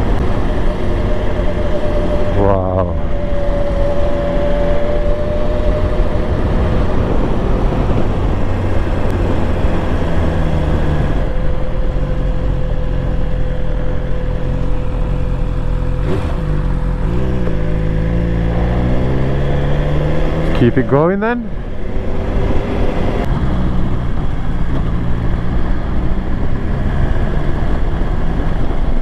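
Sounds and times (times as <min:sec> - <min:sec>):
wind noise on microphone: 0:00.0 - 0:12.6, 0:21.5 - 0:29.0
motorcycle engine running: 0:00.0 - 0:29.0.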